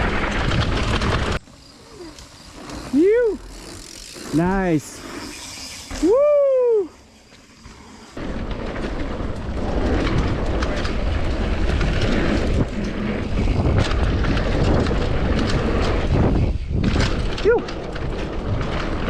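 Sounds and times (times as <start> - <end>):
tyres rumbling on dirt: 0.0 - 6.2, 7.1 - 19.0
wind on microphone: 9.8 - 19.0.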